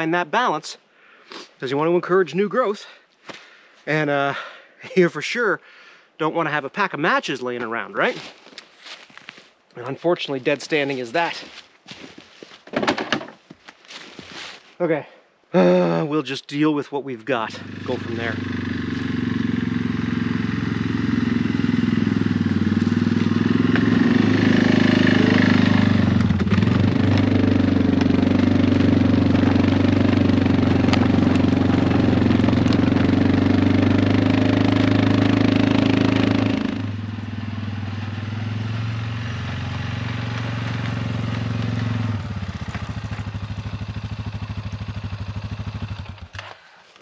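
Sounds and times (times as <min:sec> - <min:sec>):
small engine running: 0:17.6 - 0:46.6.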